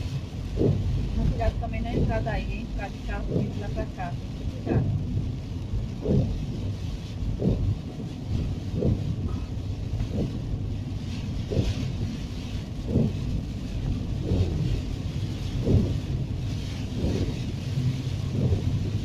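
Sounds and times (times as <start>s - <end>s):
car engine and tyres rumbling: 0.0s - 19.0s
thump and swish: 0.5s - 1.0s, 6.0s - 10.4s, 12.8s - 13.3s, 14.2s - 14.8s, 15.5s - 17.5s, 18.2s - 19.0s.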